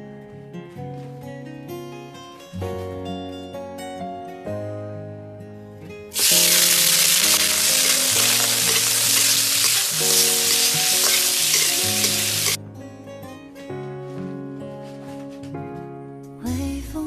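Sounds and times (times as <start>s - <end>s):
food sizzling in hot oil: 6.1s - 12.6s.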